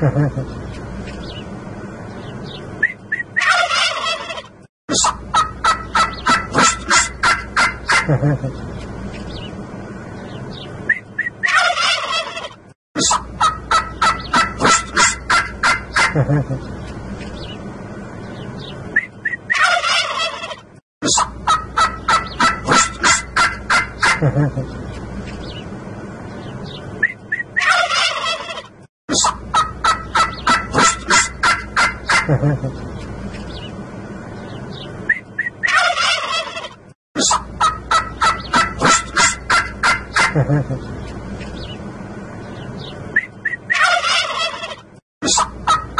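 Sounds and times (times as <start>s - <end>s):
turkeys gobbling: 2.8s - 8.6s, 10.9s - 16.7s, 19.0s - 24.8s, 27.0s - 32.9s, 35.1s - 41.2s, 43.2s - 45.9s.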